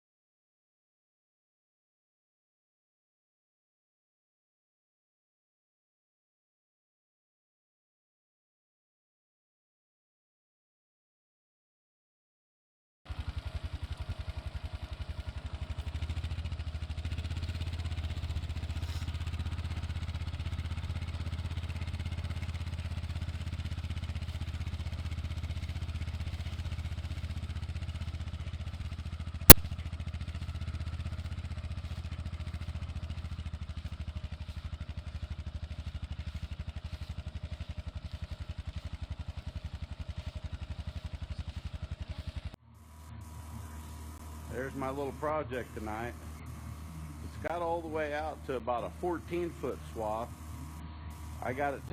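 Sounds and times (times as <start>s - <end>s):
vehicle engine pulsing: 13.1s - 51.9s
sharp click: 29.5s - 29.8s.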